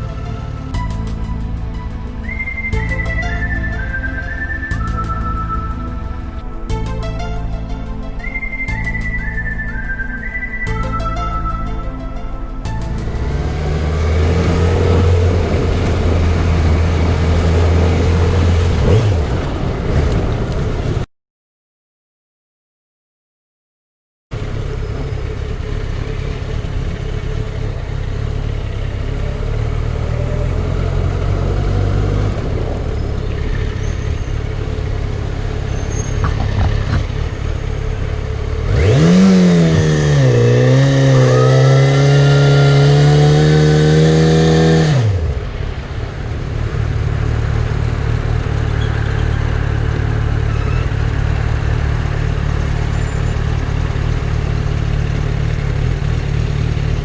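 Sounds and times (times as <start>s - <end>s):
louder engine note: 1.9s - 19.9s, 24.4s - 57.0s
motorcycle engine running: 8.3s - 21.0s, 24.4s - 57.0s.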